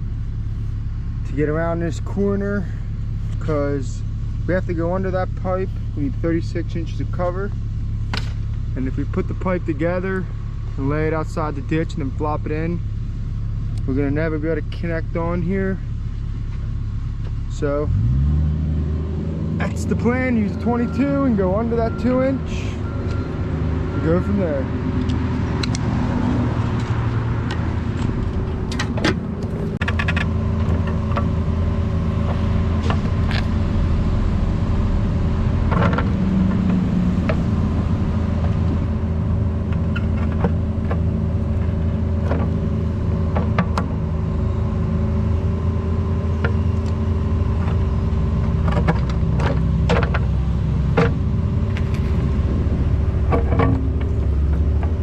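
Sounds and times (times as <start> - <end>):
excavator engine running: 18.9 - 55.0.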